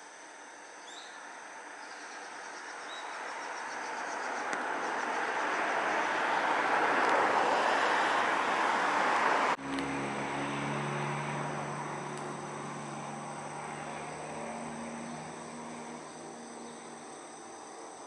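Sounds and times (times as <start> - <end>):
train approaching: 4.9 - 16.0.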